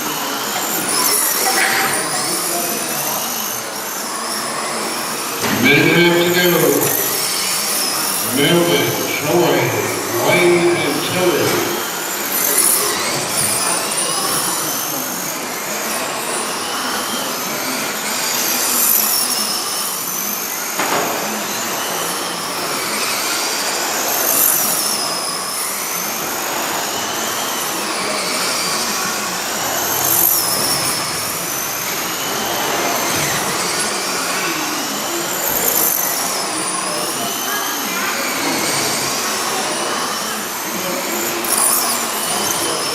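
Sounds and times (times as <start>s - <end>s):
rc truck motors whining: 0.0s - 42.9s.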